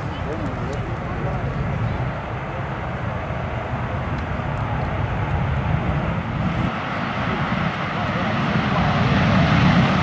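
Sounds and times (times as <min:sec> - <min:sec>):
helicopter engine and rotor drone: 0:00.0 - 0:10.0.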